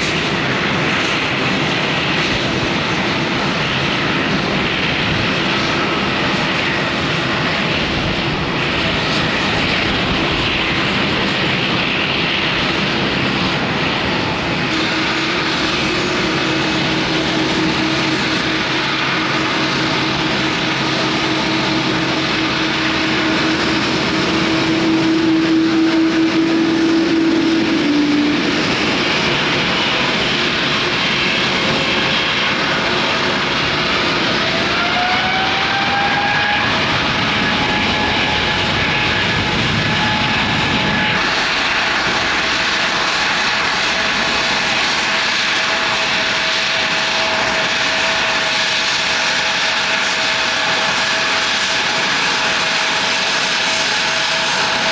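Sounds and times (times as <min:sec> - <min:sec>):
jet engines roaring and whining: 0:00.0 - 0:54.9.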